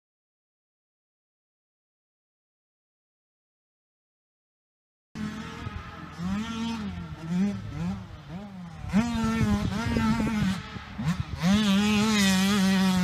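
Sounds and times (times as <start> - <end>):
motocross engine revving: 5.2 - 13.0.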